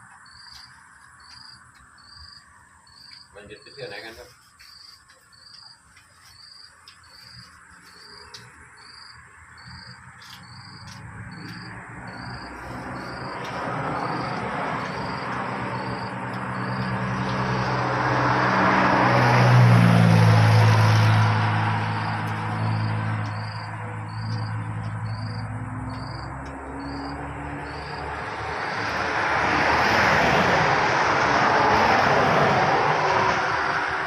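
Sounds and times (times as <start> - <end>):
insects chirping: 0.0 - 33.9
vehicle passing by: 7.1 - 34.0.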